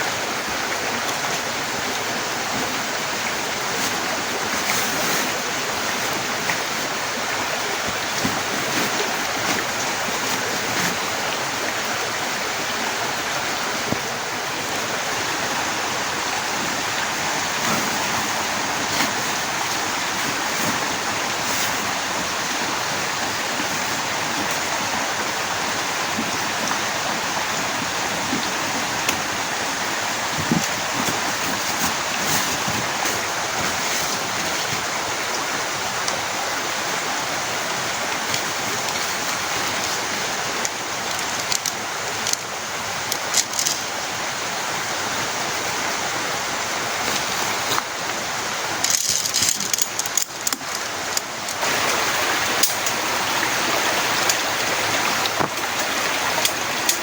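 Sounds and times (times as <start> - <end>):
heavy rain hissing: 0.0 - 57.0
sharp rain taps: 46.9 - 57.0.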